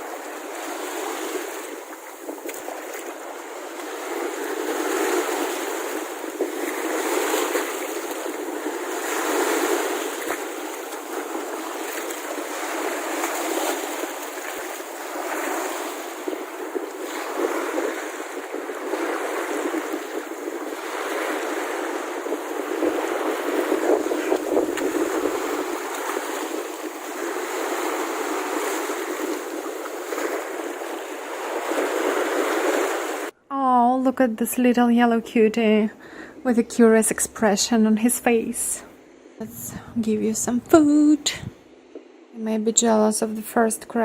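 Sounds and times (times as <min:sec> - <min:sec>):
sea waves washing on beach: 0:00.0 - 0:33.4.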